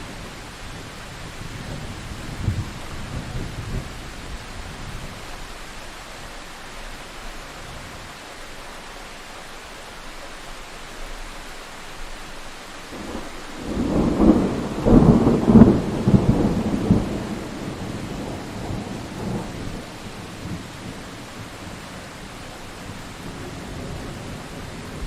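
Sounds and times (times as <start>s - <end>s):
thunder rumbling: 0.0s - 5.4s, 12.9s - 25.0s
rain hiss: 0.0s - 25.0s.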